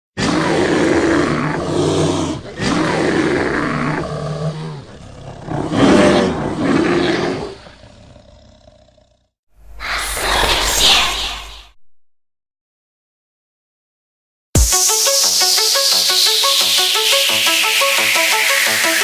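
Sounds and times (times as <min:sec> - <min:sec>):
deep growling roars: 0:00.2 - 0:11.6
loud rushing whoosh: 0:09.6 - 0:11.8.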